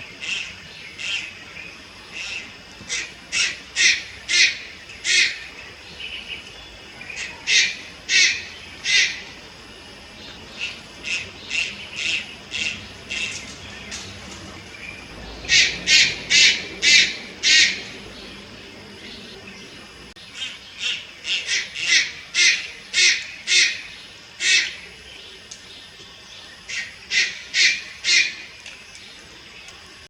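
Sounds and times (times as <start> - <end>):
heron squawking: 7.1 - 9.4, 15.4 - 18.1.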